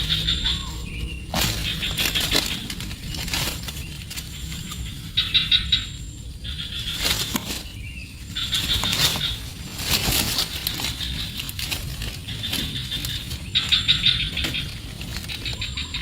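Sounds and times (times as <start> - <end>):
high-pitched squeaking calls: 0.0 - 3.2
rustling in a nest: 0.0 - 16.0.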